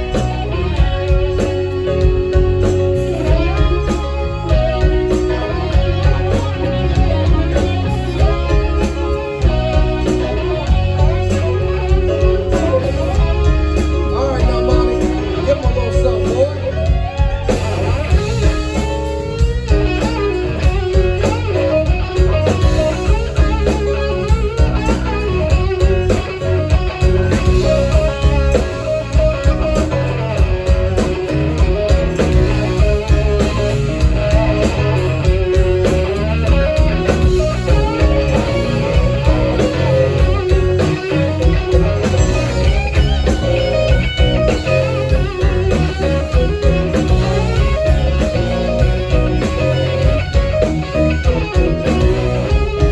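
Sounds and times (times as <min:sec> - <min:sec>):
bass guitar: 0:00.0 - 0:52.9
drums: 0:00.0 - 0:52.9
electric guitar: 0:00.0 - 0:52.9.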